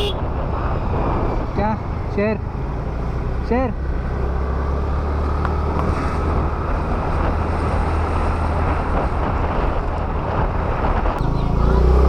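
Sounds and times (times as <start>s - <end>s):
road noise: 0.0s - 12.0s
wind rushing over microphone: 0.0s - 12.0s
scooter engine drone: 10.9s - 12.0s.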